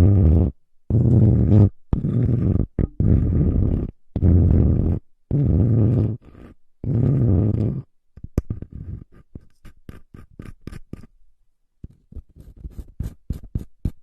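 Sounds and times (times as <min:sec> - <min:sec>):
close-miked scratches and taps: 0:08.2 - 0:11.1, 0:11.8 - 0:14.0.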